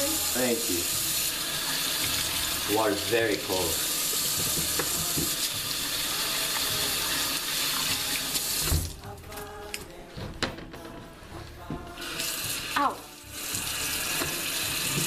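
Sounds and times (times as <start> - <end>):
tap water running into sink: 0.0 - 9.0, 12.0 - 15.0.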